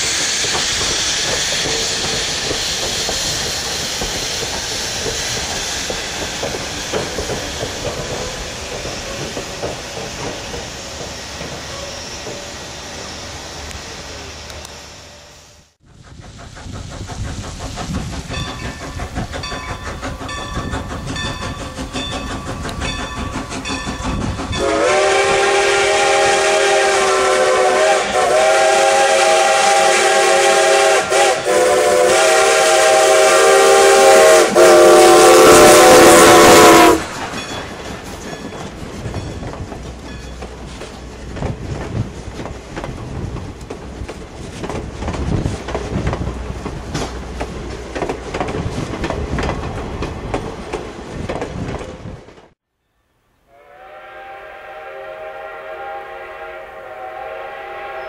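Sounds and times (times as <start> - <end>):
train wheels clicking over rail joints: 0.0 - 14.8, 15.8 - 52.6
steam whistle blasts: 24.5 - 37.2, 53.5 - 58.0.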